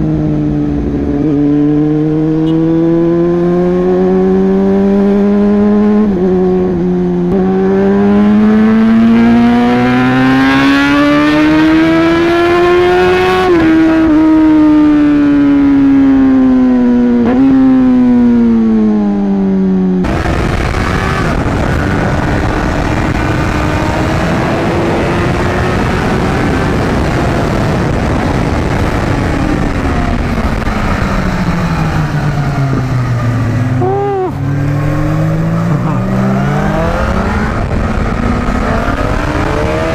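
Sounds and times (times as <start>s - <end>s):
motorcycle engine accelerating: 0.0s - 39.9s
noisier engine: 0.0s - 39.9s.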